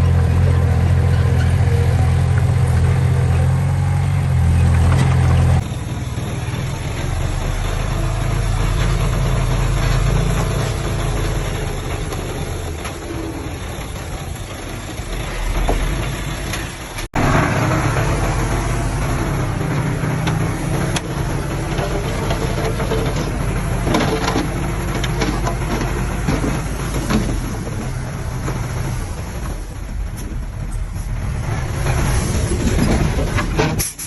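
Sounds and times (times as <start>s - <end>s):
heavy machinery diesel engines: 0.0s - 34.0s.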